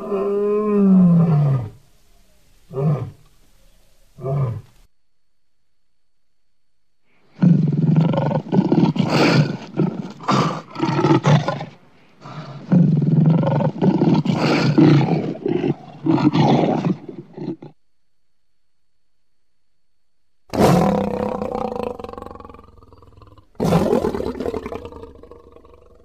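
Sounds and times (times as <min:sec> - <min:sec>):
lion roaring: 0:07.4 - 0:17.8, 0:20.5 - 0:26.0.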